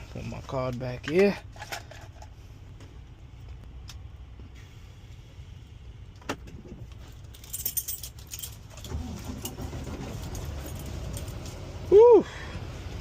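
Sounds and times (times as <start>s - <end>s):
low steady rumble: 0.0s - 13.0s
keys jangling: 7.2s - 11.6s.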